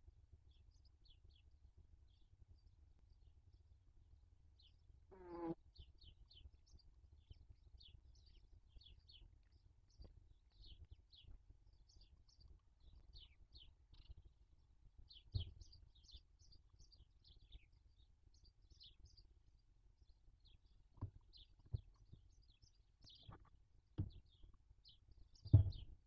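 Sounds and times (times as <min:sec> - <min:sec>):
small bird chirping: 0:04.6 - 0:26.0
dull thump: 0:24.0 - 0:24.3, 0:25.4 - 0:26.0.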